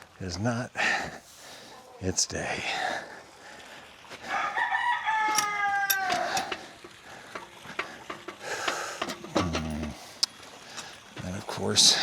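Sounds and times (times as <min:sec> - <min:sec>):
rooster crowing: 0:04.2 - 0:06.5.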